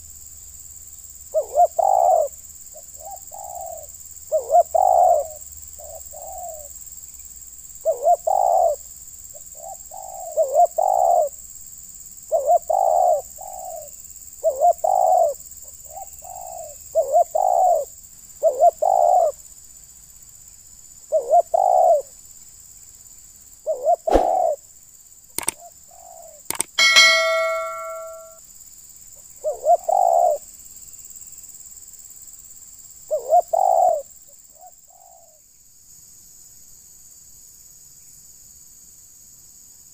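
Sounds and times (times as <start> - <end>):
sharp knocks: 26.5 - 28.3
metallic ring: 26.6 - 28.4.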